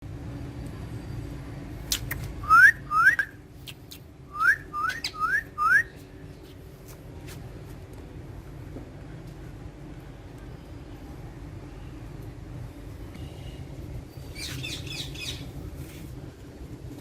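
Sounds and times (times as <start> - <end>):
parakeet rising whistles: 4.3 - 5.9.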